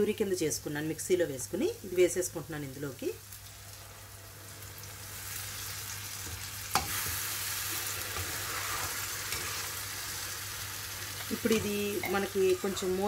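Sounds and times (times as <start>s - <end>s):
puree sizzling in hot oil: 1.3s - 13.0s.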